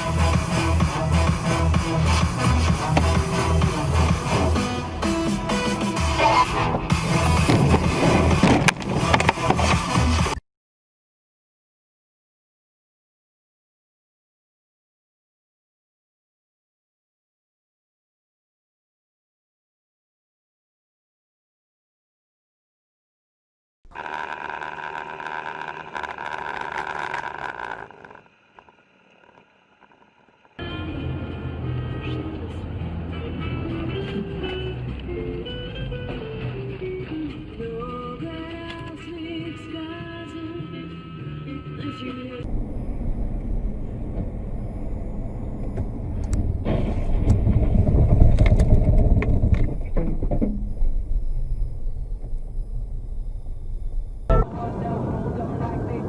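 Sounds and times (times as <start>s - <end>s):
car engine and tyre noise: 0.0s - 10.4s, 23.9s - 39.3s, 42.4s - 56.0s
road vehicle noise: 0.0s - 10.4s, 23.9s - 56.0s
sharp clicks and rattles: 23.9s - 30.6s, 45.7s - 51.1s.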